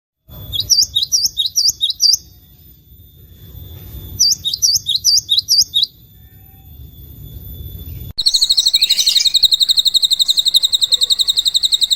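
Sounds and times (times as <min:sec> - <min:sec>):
songbird sharp chirps: 0:00.3 - 0:06.0, 0:06.8 - 0:11.9.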